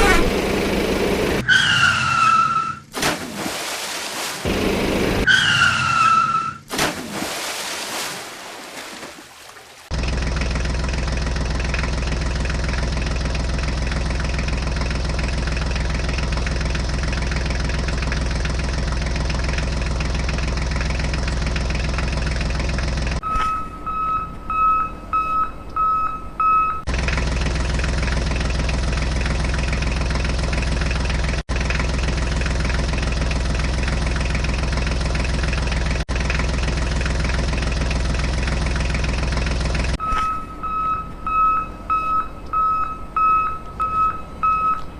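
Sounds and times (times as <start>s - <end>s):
truck engine rumble: 0.0s - 6.8s, 8.4s - 44.9s
reversing beeper: 23.2s - 26.9s, 40.0s - 44.9s.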